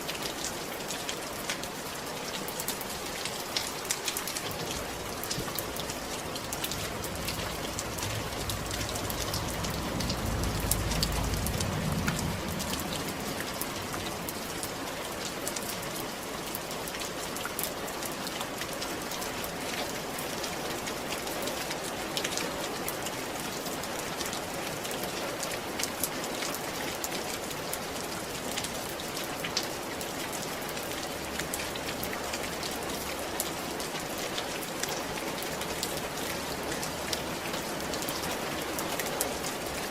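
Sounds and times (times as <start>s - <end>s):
rain on a roof: 0.0s - 39.9s
low rumble: 6.7s - 14.2s.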